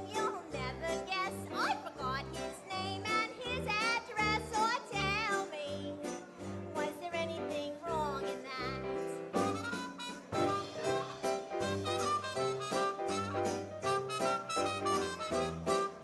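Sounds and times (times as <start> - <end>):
jazz dance band playing: 8.8 - 16.0.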